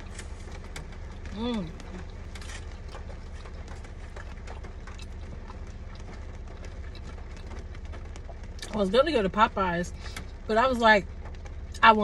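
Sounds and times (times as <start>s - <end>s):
chewing crunches: 0.0s - 8.8s
steady low hum: 0.0s - 12.0s.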